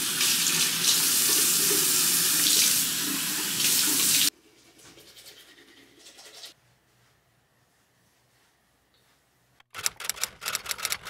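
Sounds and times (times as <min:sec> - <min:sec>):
tap water running into sink: 0:00.0 - 0:04.3.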